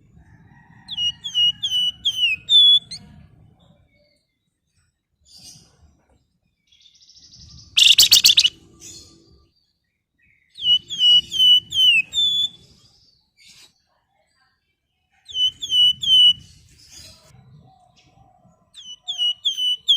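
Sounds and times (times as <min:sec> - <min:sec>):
faint bird chirps: 0:00.5 - 0:19.9
songbird trilling and whistling: 0:00.9 - 0:03.1, 0:06.8 - 0:09.1, 0:10.4 - 0:12.7, 0:15.3 - 0:16.6, 0:18.8 - 0:19.9.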